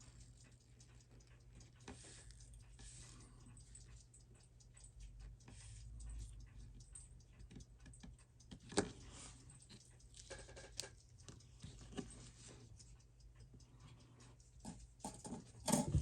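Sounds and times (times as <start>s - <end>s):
tweezers and screwdriver clicking on metal: 3.5s - 16.0s.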